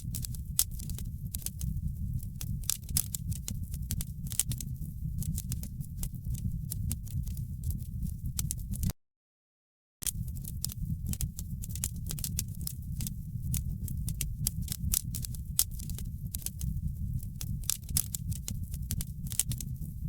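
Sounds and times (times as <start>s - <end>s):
wood fire crackling and popping: 0.0s - 8.9s, 10.0s - 20.0s.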